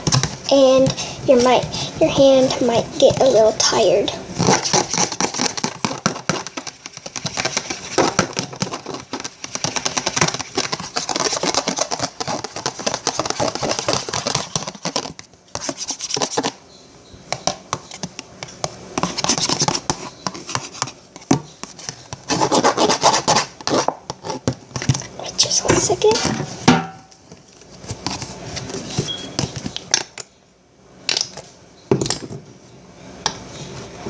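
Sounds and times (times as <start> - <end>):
slime stirred in a bowl: 0.0 - 16.6, 17.4 - 30.0.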